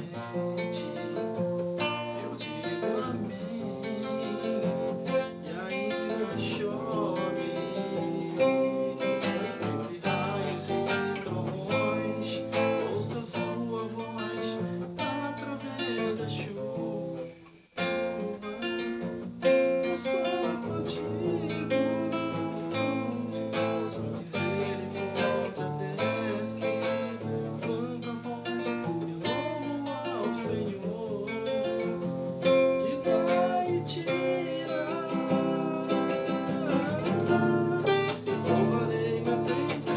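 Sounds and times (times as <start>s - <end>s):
acoustic guitar playing: 0.0s - 39.9s.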